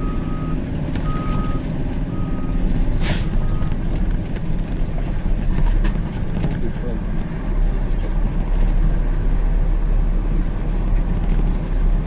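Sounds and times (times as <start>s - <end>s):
truck backup alarm beeping: 0.0s - 3.9s
diesel truck engine rumble: 0.0s - 12.0s.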